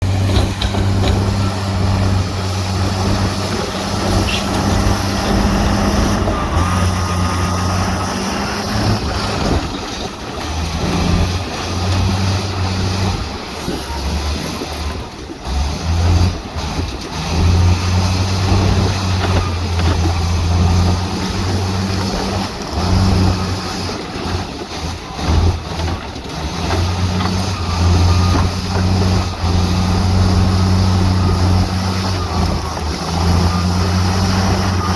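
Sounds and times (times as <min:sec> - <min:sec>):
metal clanks and knocks: 0:00.0 - 0:02.3
heavy diesel engines running: 0:00.0 - 0:34.9.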